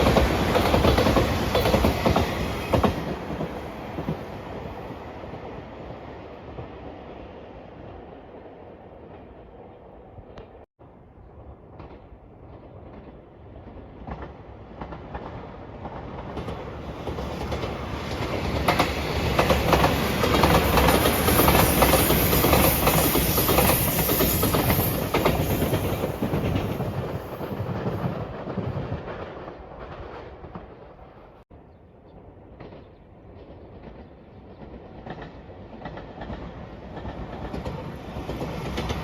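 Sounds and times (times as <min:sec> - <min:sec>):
train wheels clattering over rails: 0:00.0 - 0:04.4, 0:14.0 - 0:30.9.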